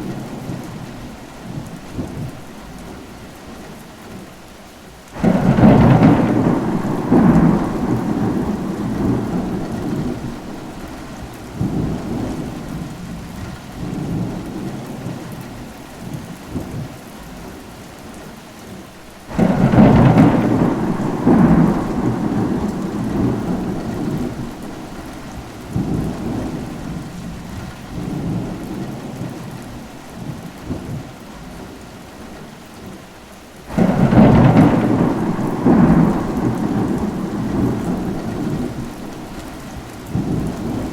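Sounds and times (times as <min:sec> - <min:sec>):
rain: 0:00.0 - 0:40.9
thunderclap: 0:05.2 - 0:15.2, 0:19.3 - 0:29.6, 0:33.7 - 0:40.9
rolling thunder: 0:05.2 - 0:15.3, 0:19.3 - 0:31.1, 0:33.7 - 0:40.9.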